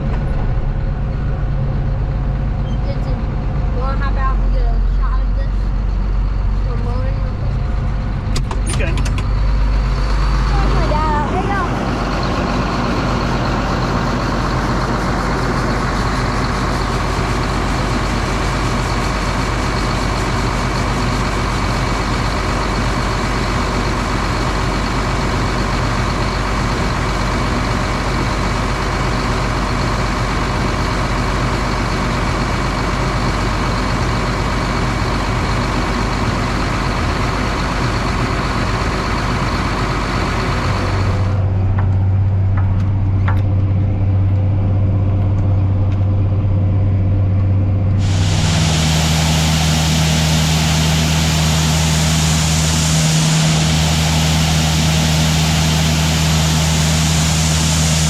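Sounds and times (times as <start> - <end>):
farm machinery engine running: 0.0 - 58.0
high whine: 47.1 - 58.0.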